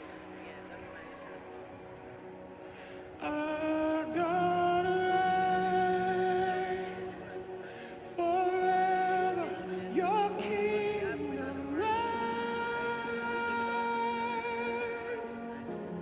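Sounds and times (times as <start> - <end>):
person singing long notes: 3.2 - 16.0.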